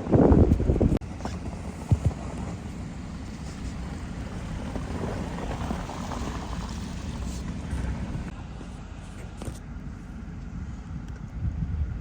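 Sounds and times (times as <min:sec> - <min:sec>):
vehicle engine and tyres rumbling: 0:00.0 - 0:12.0.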